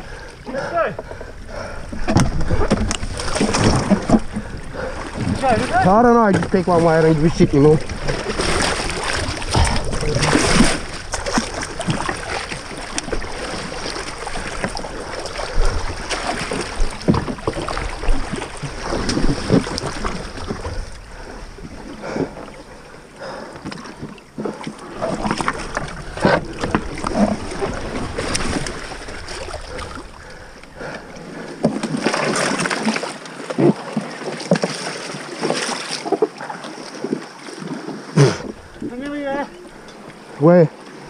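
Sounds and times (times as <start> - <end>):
water splashes: 0.0 - 41.0
paddles knocking against hull: 0.1 - 40.3.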